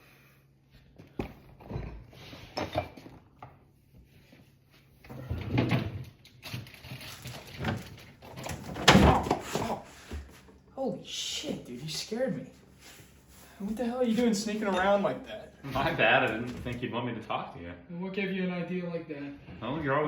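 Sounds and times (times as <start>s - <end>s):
cupboard doors and drawers knocking: 8.4s - 9.8s.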